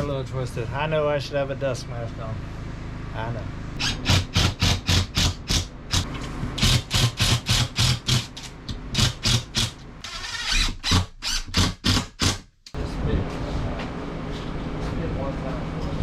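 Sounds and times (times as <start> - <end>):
hand saw cutting drywall: 3.8 - 8.4.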